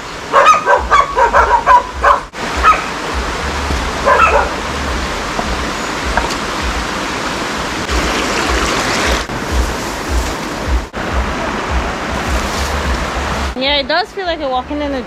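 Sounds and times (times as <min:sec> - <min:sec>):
dog barking: 0:00.3 - 0:02.9, 0:04.0 - 0:04.6.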